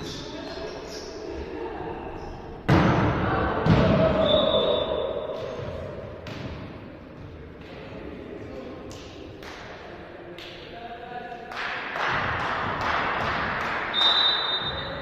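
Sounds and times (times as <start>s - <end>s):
players' voices: 0.0s - 12.4s
volleyball hits echoing: 2.6s - 8.0s.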